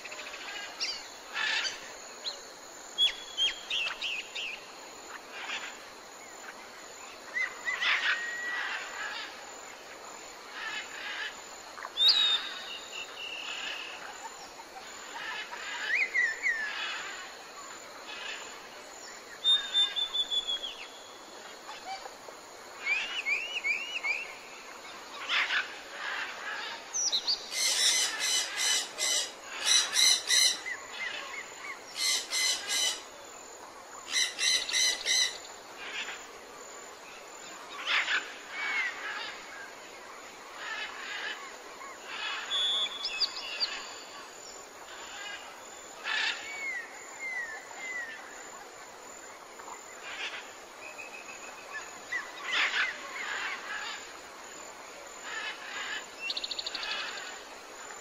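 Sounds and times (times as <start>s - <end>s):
mixed wild birdsong: 0.0s - 58.0s
rapid harsh bird calls: 27.5s - 33.0s.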